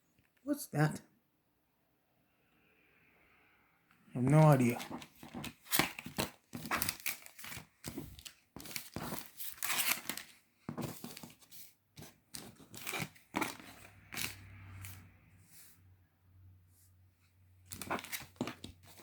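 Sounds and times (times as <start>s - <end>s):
plastic wrappers ripping and crinkling: 4.6s - 10.4s.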